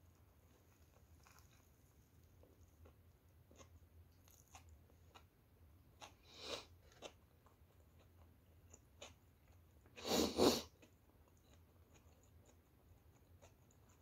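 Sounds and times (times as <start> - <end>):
person chewing sandwich: 0.2 - 14.0.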